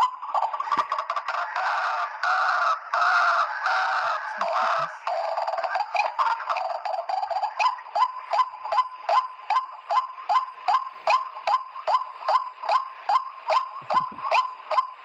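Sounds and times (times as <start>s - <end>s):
waterhen call: 0.0s - 15.0s.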